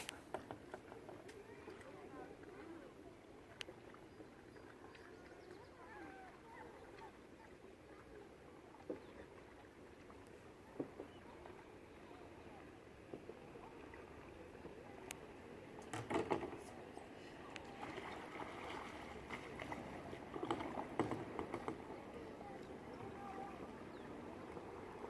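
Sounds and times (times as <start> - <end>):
faint steady background noise: 0.0 - 25.0
kayak knocks and splashes: 15.8 - 16.7, 17.7 - 22.0.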